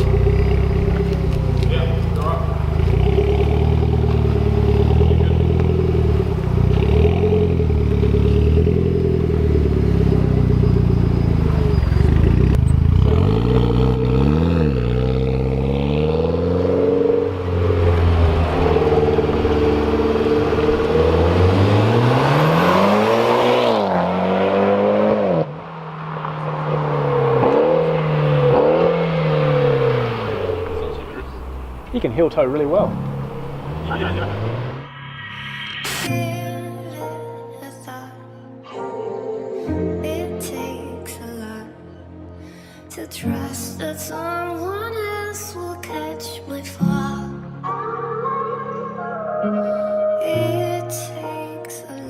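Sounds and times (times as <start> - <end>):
engine throttle blips: 0.0 - 23.5, 27.1 - 34.9
turbocharged car engine revving: 0.0 - 35.0.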